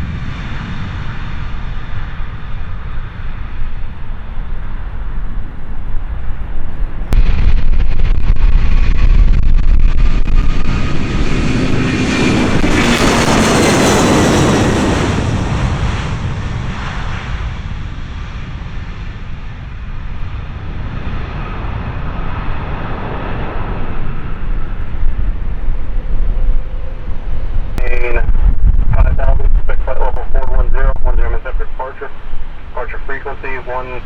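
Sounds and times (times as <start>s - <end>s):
jet airliner passing by: 0.0s - 34.0s.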